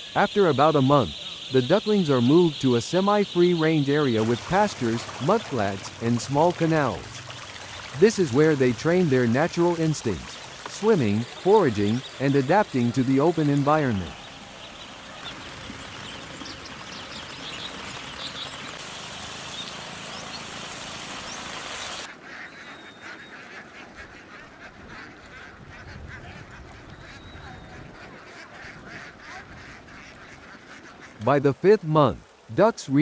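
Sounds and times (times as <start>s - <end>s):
ducks quacking: 0.0s - 18.0s, 21.2s - 31.5s
steady hiss: 18.8s - 22.1s.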